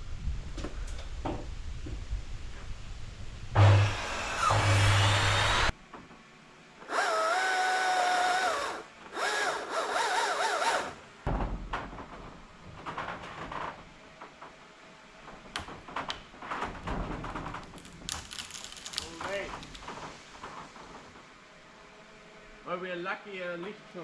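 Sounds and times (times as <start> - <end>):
power drill whining: 3.6 - 5.7, 6.8 - 11.0.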